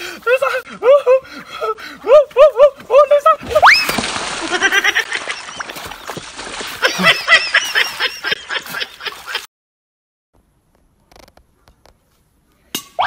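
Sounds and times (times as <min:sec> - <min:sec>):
splashing in muddy water: 0:03.4 - 0:09.5.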